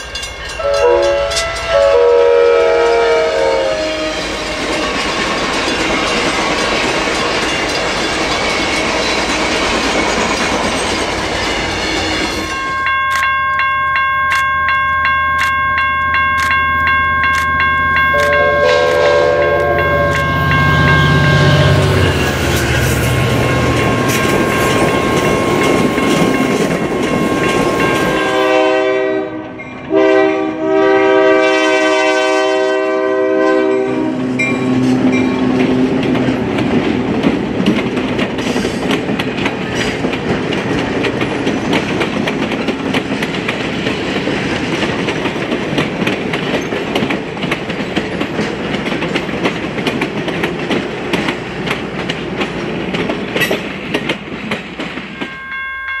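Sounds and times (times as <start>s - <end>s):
train cars clickety-clack: 0.0s - 56.0s
train running past: 0.0s - 56.0s
locomotive air horn blowing: 0.6s - 4.3s, 18.1s - 22.1s, 23.5s - 26.2s, 27.0s - 35.0s.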